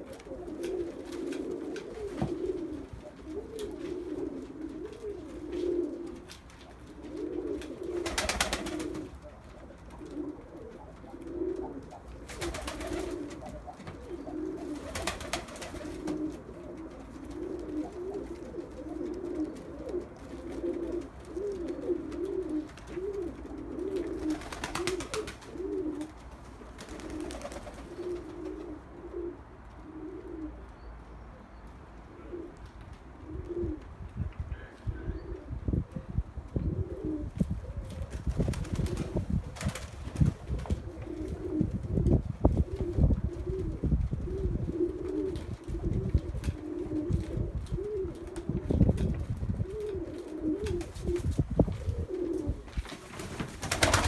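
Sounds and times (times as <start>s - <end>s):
pigeons cooing: 0.0s - 30.7s, 34.5s - 54.0s.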